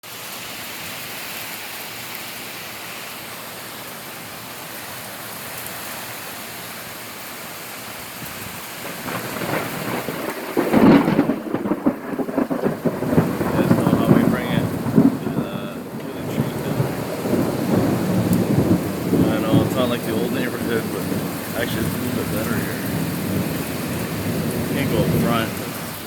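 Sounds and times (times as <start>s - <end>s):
rain hissing: 0.0s - 26.0s
thunder rumbling: 8.4s - 26.0s.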